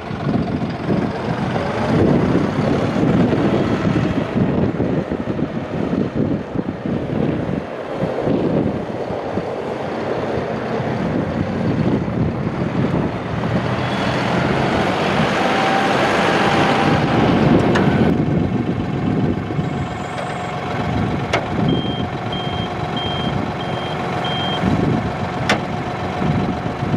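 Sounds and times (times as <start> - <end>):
loud rushing noise: 0.0 - 20.0
tractor diesel engine running: 0.0 - 26.9
short high beeps: 19.6 - 20.6, 21.7 - 24.6.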